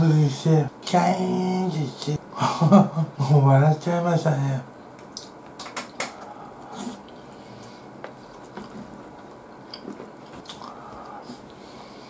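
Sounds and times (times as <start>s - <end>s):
sharp clicks: 5.0s - 6.3s
person chewing wetly: 5.9s - 11.2s.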